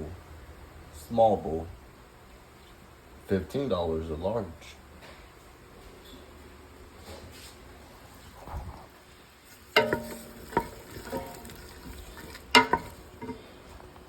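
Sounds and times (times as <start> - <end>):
food sizzling: 9.5 - 13.5
spoon clanking on metal pot: 9.7 - 13.4
spoon stirring in pot: 9.7 - 13.7.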